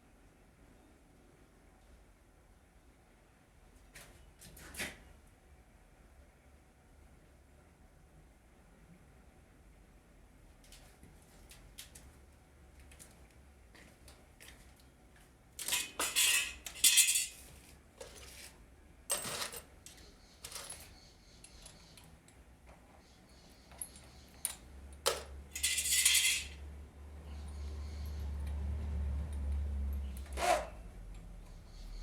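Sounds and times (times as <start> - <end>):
small hard objects clinking: 15.6 - 17.5, 25.1 - 26.6.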